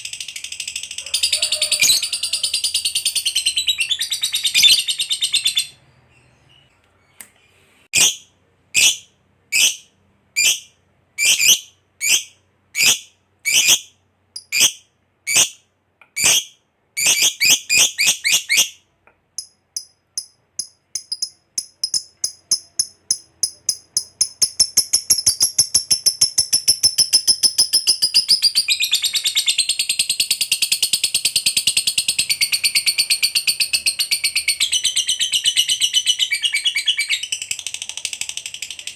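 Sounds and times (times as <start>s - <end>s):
lovebird chattering trill: 19.4s - 37.8s.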